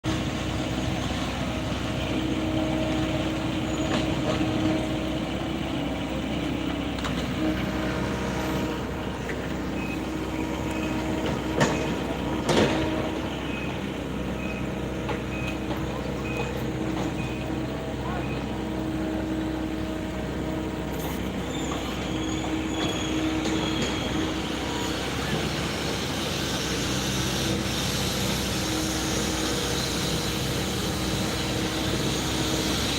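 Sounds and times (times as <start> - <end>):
diesel machinery running: 0.0 - 32.9
faint short beeps: 15.3 - 16.6.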